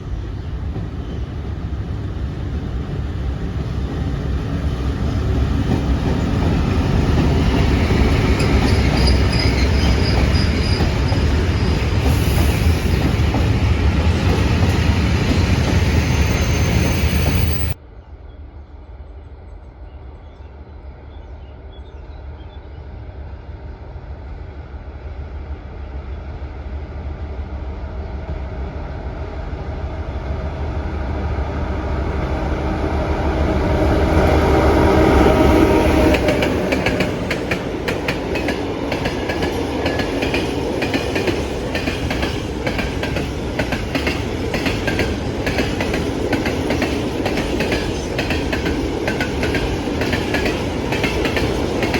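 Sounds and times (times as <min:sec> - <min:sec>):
train passing: 0:00.0 - 0:51.9.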